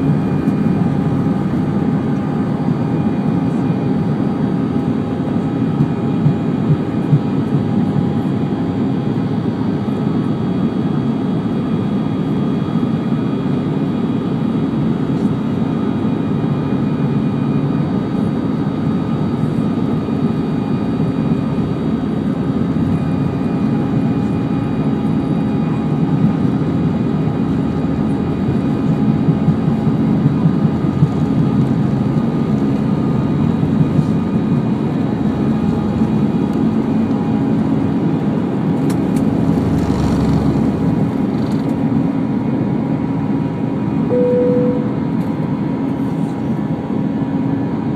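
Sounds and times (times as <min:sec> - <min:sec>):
jet engine and airflow drone: 0:00.0 - 0:47.9
faint steady whining tones: 0:44.0 - 0:45.8.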